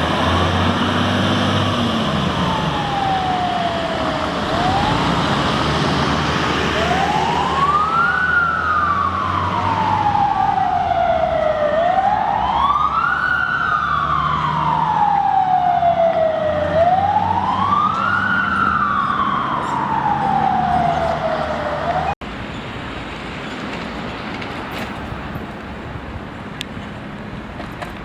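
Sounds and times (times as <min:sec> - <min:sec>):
fire truck siren wailing: 0:00.0 - 0:22.2.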